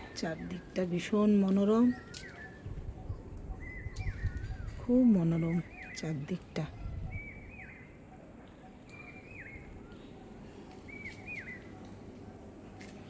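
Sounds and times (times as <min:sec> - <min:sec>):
faint outdoor background noise: 0:00.0 - 0:13.0
bird whistling call: 0:10.9 - 0:11.7.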